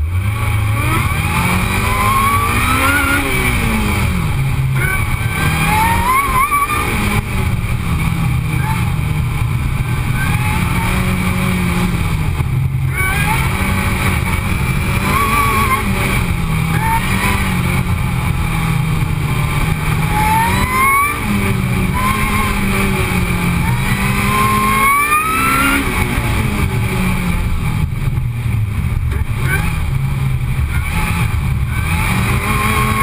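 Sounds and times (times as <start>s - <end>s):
car engine under load: 0.0s - 33.0s
supercharger whine: 0.0s - 33.0s.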